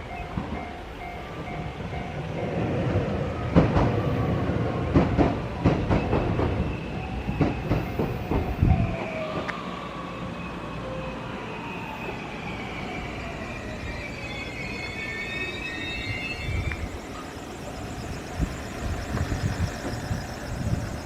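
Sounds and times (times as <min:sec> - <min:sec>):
train rumble: 0:00.0 - 0:21.0
high wheel squeal: 0:12.7 - 0:21.0.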